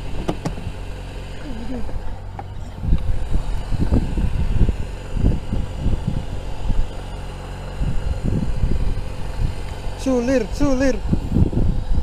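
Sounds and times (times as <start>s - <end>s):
low rumbling thumps: 0.0s - 0.9s
boat motor humming: 0.0s - 12.0s.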